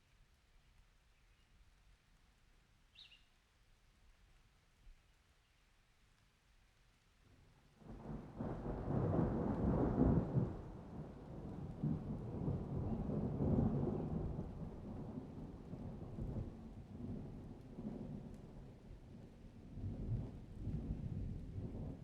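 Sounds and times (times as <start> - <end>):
thunder rumbling: 7.8 - 22.0.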